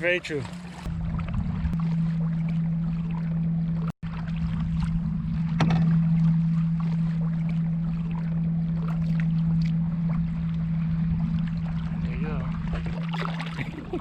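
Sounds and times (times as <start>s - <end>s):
choppy water: 0.0s - 14.0s
paddle strokes splashing: 0.0s - 14.0s
steady low hum: 0.5s - 14.0s
wind on microphone: 0.8s - 2.0s, 10.1s - 14.0s.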